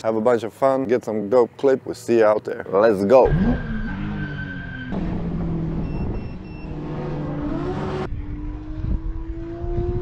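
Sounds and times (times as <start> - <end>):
car engines revving: 3.1 - 10.0
short high beeps: 5.8 - 6.8.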